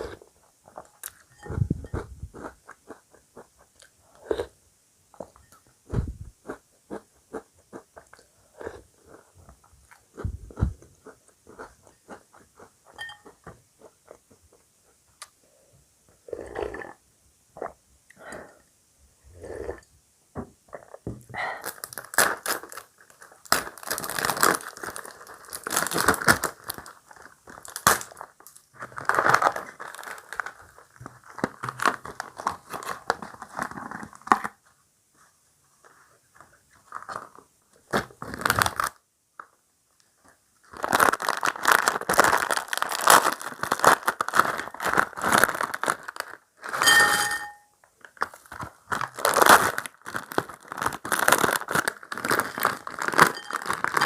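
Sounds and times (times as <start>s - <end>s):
cereal crunching while chewed: 0.0s - 4.6s, 6.4s - 15.4s, 21.6s - 34.6s, 40.7s - 46.9s, 48.0s - 54.0s.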